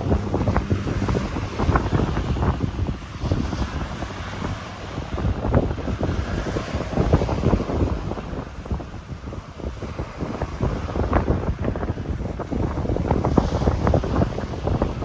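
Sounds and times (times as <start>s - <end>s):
ocean waves: 0.0s - 15.0s
wind buffeting microphone: 0.0s - 15.0s.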